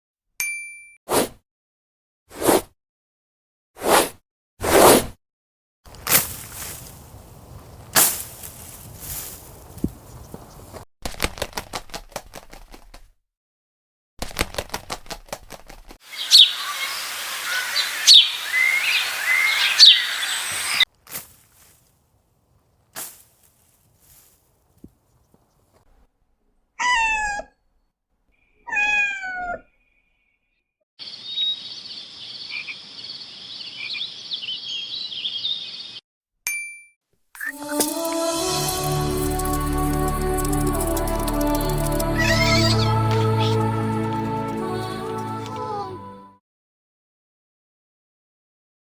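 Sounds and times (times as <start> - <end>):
cat meowing: 26.8 - 27.5, 28.7 - 29.7, 42.2 - 43.6
frogs chirring: 31.0 - 36.0
rapid sharp clicks: 38.8 - 42.2.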